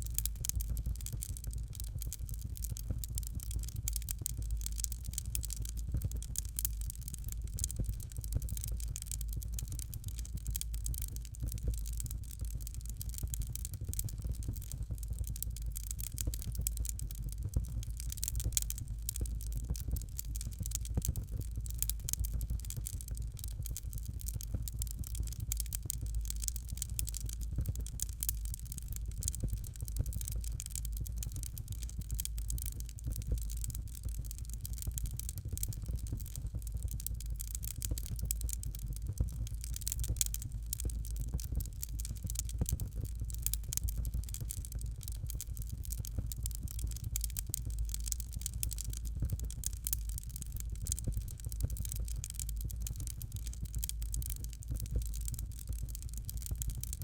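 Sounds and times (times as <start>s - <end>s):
fire crackling and popping: 0.0s - 57.0s
low fire rumble: 0.0s - 57.0s.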